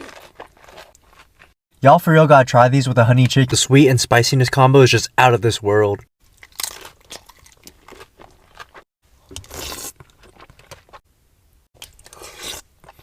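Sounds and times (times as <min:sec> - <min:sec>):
crunching: 0:00.0 - 0:01.6, 0:06.2 - 0:11.0
person chewing food: 0:00.0 - 0:01.6, 0:06.2 - 0:11.0.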